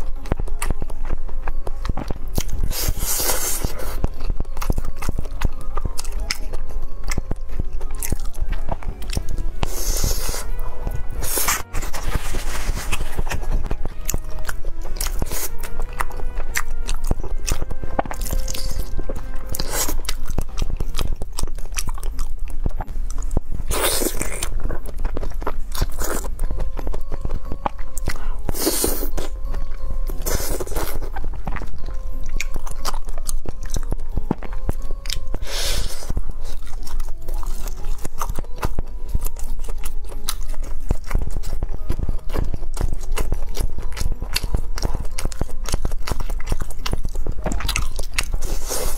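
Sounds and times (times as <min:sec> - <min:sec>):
background music: 0:00.0 - 0:48.9
wet chewing and crunching: 0:00.0 - 0:48.9.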